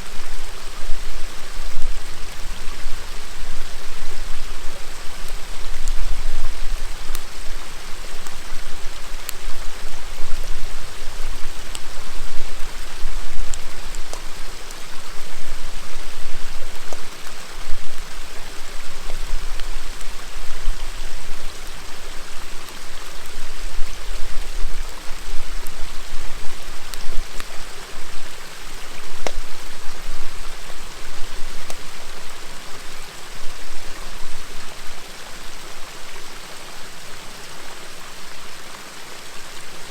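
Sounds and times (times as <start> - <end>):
campfire crackling: 0.0 - 39.9
river babbling and rushing: 0.0 - 39.9.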